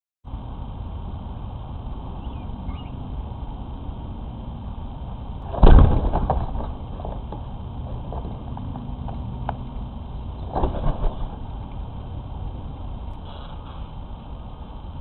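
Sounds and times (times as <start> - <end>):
steady low rumble: 0.3 - 15.0
faint bird chirps: 2.2 - 3.1.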